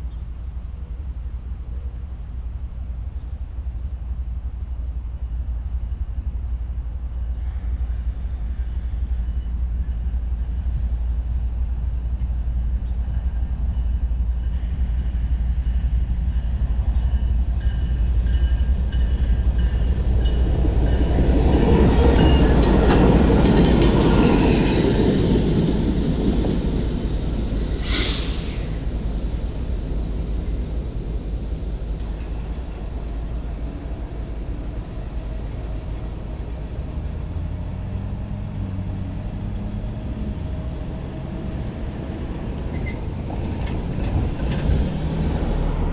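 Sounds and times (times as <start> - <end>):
diesel locomotive rumbling past: 0.0 - 45.9
rail clatter: 17.1 - 30.9, 42.0 - 45.9
short sharp hiss: 27.8 - 28.8.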